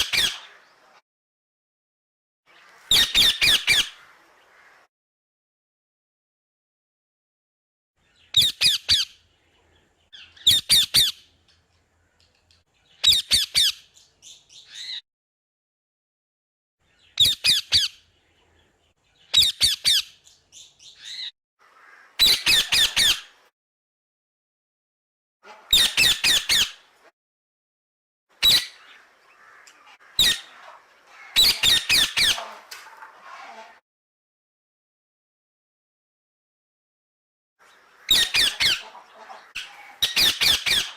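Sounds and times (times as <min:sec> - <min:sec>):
parrot squawking: 0:02.9 - 0:04.0, 0:22.2 - 0:23.3, 0:25.5 - 0:26.8, 0:28.4 - 0:32.7, 0:38.0 - 0:40.9.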